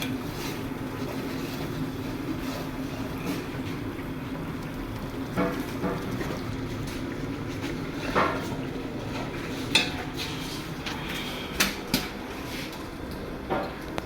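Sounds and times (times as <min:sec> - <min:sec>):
metal utensils clinking on a pot: 0:09.6 - 0:10.1.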